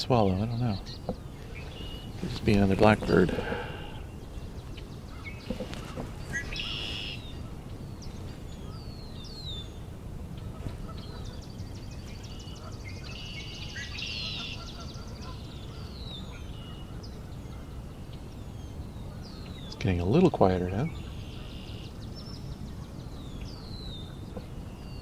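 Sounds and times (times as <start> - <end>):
buzzy trilled bird songs: 0.0 - 25.0
down-slurred bird whistles: 6.3 - 7.2.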